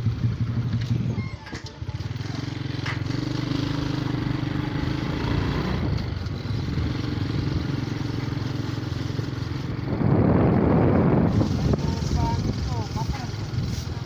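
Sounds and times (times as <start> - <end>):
motorcycle engine running: 0.0 - 14.0
rush of noise: 9.6 - 14.0.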